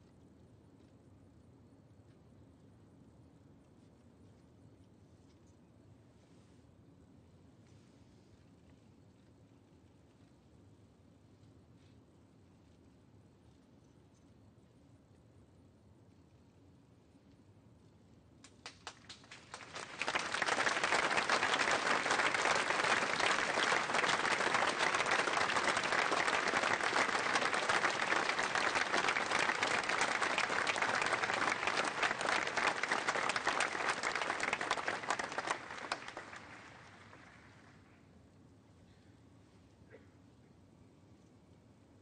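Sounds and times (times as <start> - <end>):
audience applause: 18.8 - 37.6.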